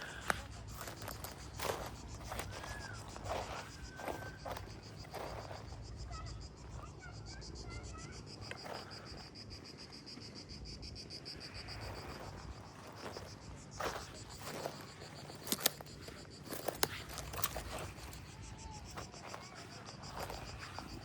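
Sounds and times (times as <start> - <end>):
footsteps: 0.0 - 5.7, 11.8 - 21.0
cicadas droning: 0.0 - 21.0.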